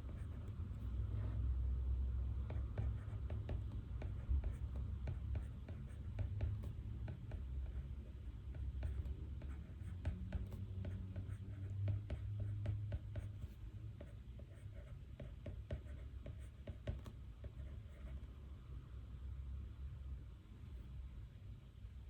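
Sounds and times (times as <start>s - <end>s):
pen scratching on paper: 0.0s - 1.4s, 2.4s - 18.2s
steady low hum: 0.0s - 22.0s.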